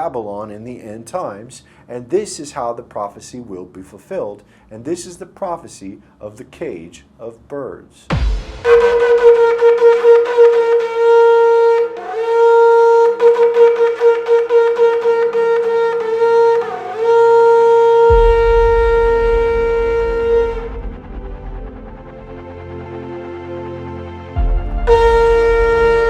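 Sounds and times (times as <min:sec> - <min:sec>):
low rumbling music: 0:08.1 - 0:11.2, 0:14.6 - 0:26.0
shofar blasts: 0:08.6 - 0:22.1, 0:24.4 - 0:26.0.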